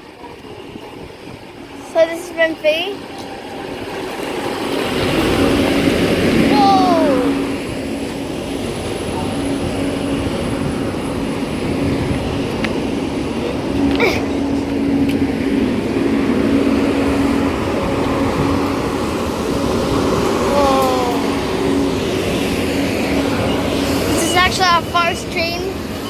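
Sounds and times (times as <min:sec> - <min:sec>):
electric train humming: 0:00.0 - 0:26.0.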